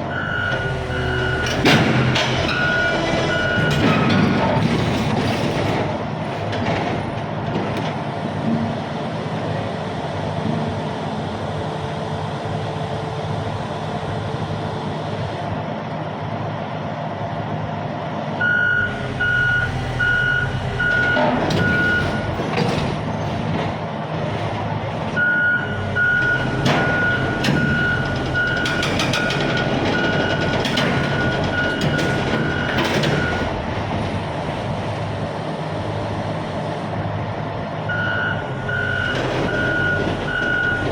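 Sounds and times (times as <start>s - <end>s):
diesel engine running: 0.0s - 40.9s
reversing alarm beeping: 0.1s - 4.3s, 18.4s - 22.8s, 25.2s - 33.6s, 37.9s - 40.9s.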